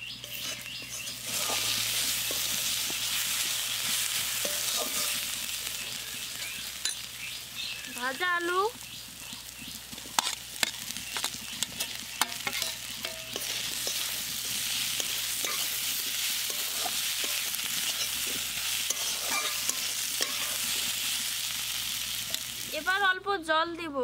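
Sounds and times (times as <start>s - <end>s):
oil sizzling: 0.0s - 23.2s
metal spatula scraping pan: 0.1s - 5.5s, 10.1s - 20.9s.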